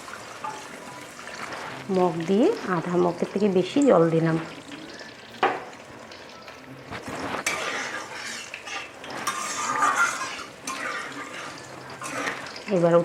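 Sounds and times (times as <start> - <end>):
spoon scraping pan: 6.9 - 13.0
metal spoon clinking in pan: 7.5 - 12.7.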